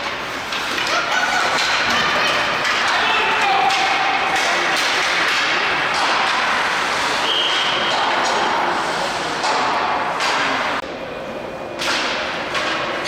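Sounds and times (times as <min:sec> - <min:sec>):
sticks and puck cracking: 0:00.0 - 0:07.0, 0:09.3 - 0:10.8
din of spectators' voices: 0:00.0 - 0:13.0.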